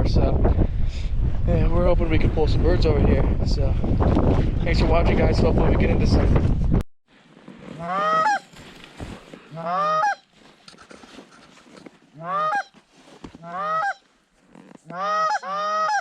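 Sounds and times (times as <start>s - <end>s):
goose honks: 9.5s - 10.2s, 12.2s - 12.7s, 13.4s - 14.0s, 14.9s - 16.0s.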